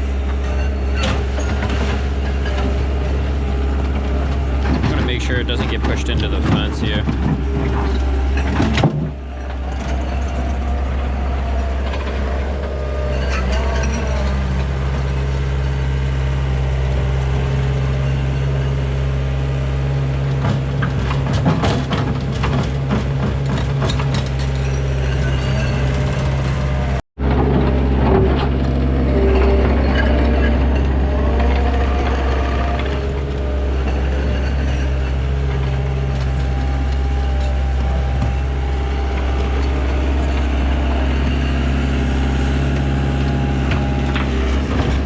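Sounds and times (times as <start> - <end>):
diesel engine running: 0.0 - 45.0
clanks and knocks: 3.8 - 11.2, 20.3 - 45.0.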